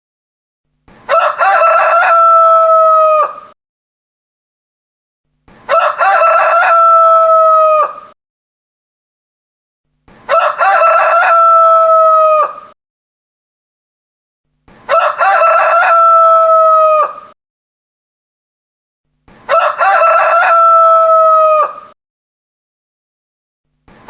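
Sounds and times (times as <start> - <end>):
rooster crowing: 1.1 - 3.6, 5.7 - 8.2, 10.3 - 12.8, 14.9 - 17.4, 19.5 - 22.0.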